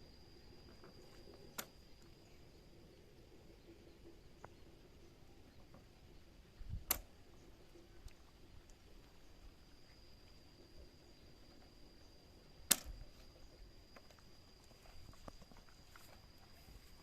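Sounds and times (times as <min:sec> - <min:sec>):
faint high-pitched whine: 0:00.0 - 0:17.0
sharp click: 0:06.8 - 0:07.1, 0:12.7 - 0:13.0.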